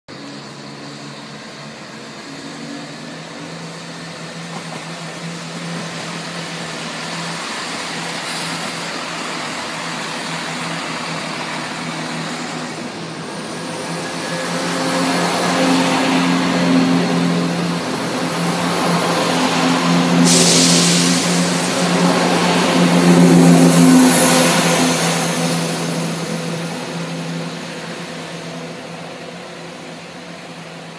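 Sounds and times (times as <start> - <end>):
diesel train engine droning: 0.1 - 30.9
air hiss: 4.9 - 27.0.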